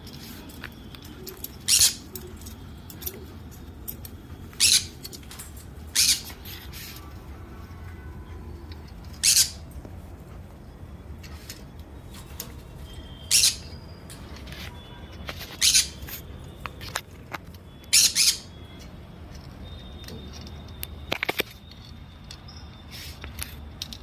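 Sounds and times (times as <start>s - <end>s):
parrots squawking harshly: 1.7s - 2.1s, 4.6s - 5.0s, 5.9s - 6.4s, 9.1s - 9.6s, 13.3s - 13.8s, 15.6s - 16.0s, 17.9s - 18.5s.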